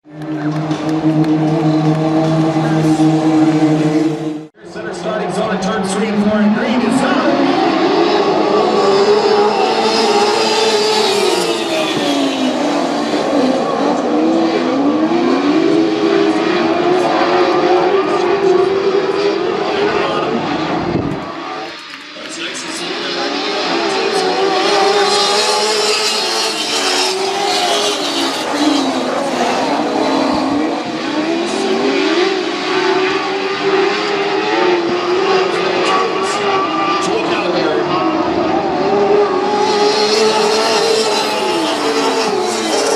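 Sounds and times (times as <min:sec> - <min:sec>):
race car engines at high revs: 0:00.0 - 0:42.9.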